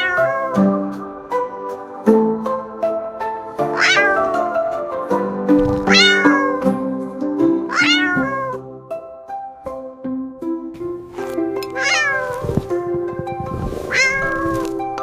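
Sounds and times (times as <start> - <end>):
cat meowing: 0.0 - 0.8, 3.7 - 4.5, 5.6 - 6.8, 7.7 - 8.6, 11.7 - 12.5, 13.9 - 14.8
background music: 0.0 - 15.0.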